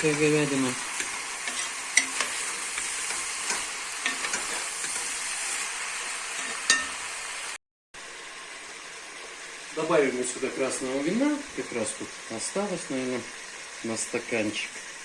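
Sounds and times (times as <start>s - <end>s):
meat and vegetables sizzling in pot: 0.0s - 15.0s.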